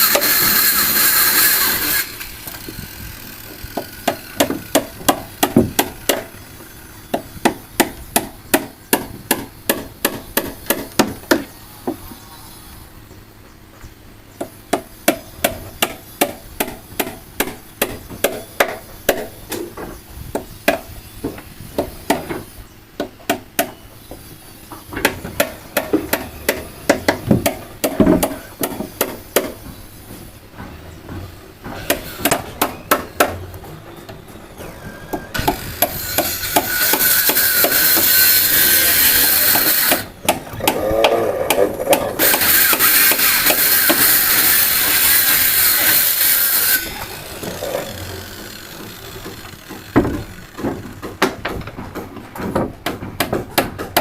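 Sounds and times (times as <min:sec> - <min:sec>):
power tool running: 0:00.0 - 0:07.1, 0:35.1 - 0:51.1
hammer on wooden boards: 0:03.5 - 0:06.3, 0:07.0 - 0:12.0, 0:14.4 - 0:34.1, 0:35.1 - 0:45.0, 0:46.6 - 0:54.0.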